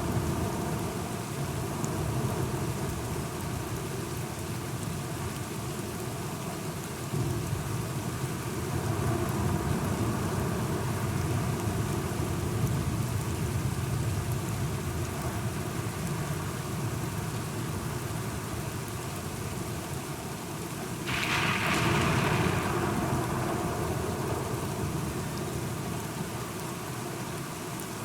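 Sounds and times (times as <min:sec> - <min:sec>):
steady rain: 0:00.0 - 0:28.0
low rumble of thunder: 0:21.1 - 0:26.4.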